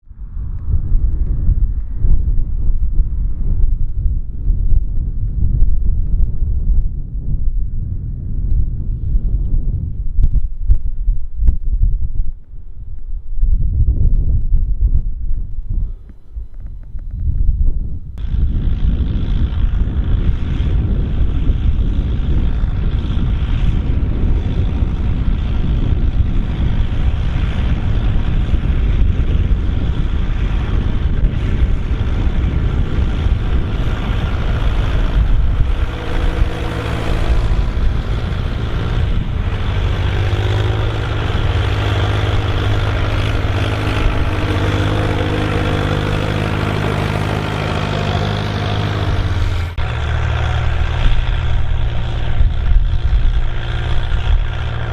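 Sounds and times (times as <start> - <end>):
heavy low rumble: 0.0 - 54.9
tractor diesel engine: 18.2 - 54.9.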